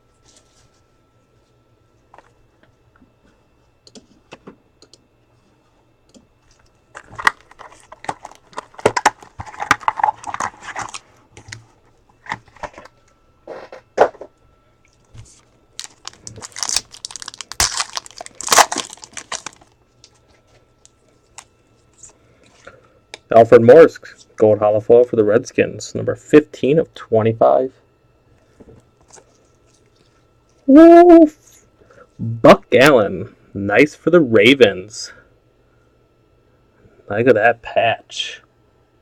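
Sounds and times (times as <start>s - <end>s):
plastic wrapping crinkling and tearing: 7.0s - 11.6s, 15.2s - 22.2s.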